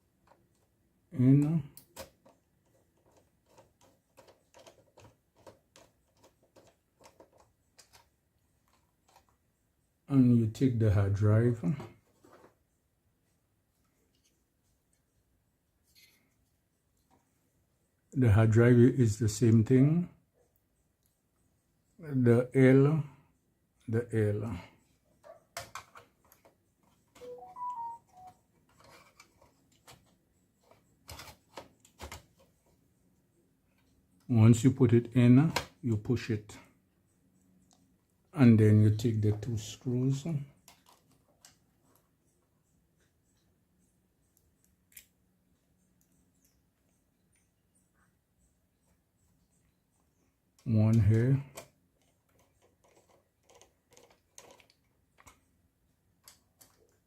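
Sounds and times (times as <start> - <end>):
brief tones stepping in pitch: 27.2 - 28.3.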